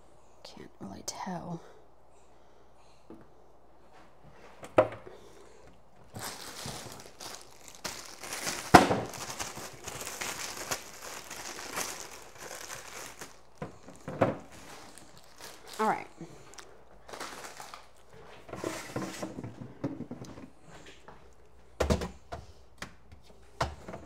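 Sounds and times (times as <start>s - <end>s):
plastic packaging crinkling: 6.0s - 19.4s.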